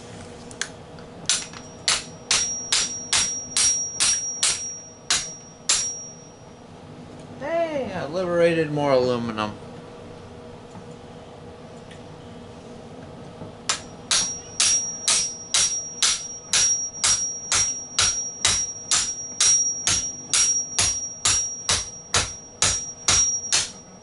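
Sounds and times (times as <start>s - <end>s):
hammer striking metal: 1.3s - 6.4s, 13.7s - 24.0s
high metallic ring: 1.5s - 6.6s, 13.7s - 24.0s.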